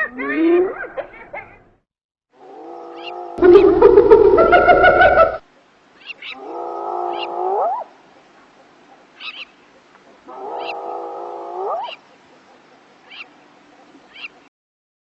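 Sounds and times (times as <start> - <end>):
hyena calling: 6.0 - 7.9, 10.2 - 12.0.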